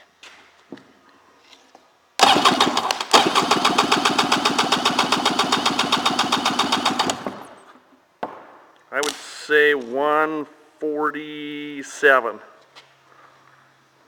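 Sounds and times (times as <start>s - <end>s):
engine cranking with starter: 2.2s - 7.7s.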